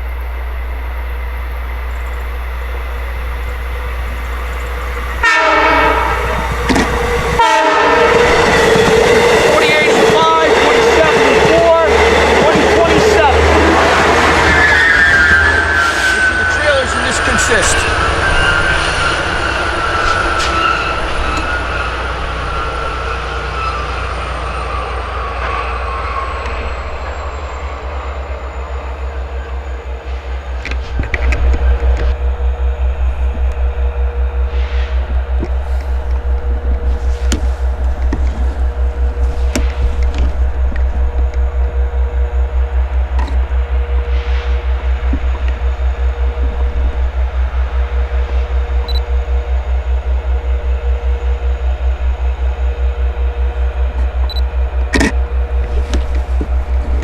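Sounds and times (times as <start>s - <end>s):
train rumbling: 0.0s - 57.0s
train horn chord: 2.5s - 24.1s.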